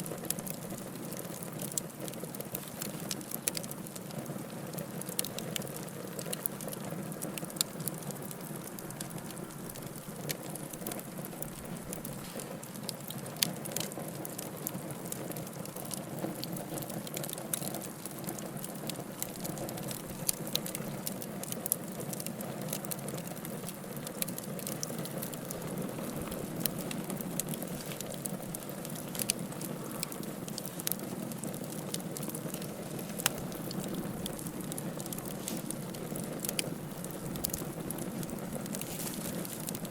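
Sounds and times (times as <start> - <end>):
wood fire crackling: 0.0 - 39.9
logs popping and snapping: 15.6 - 39.9
low rush of flame: 24.2 - 39.9.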